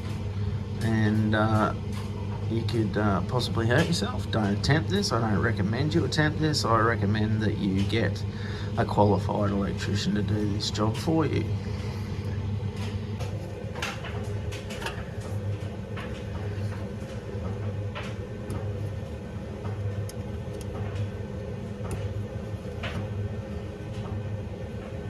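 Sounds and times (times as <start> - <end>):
steady low hum: 0.0 - 25.0
light clicks and knocks: 12.8 - 25.0.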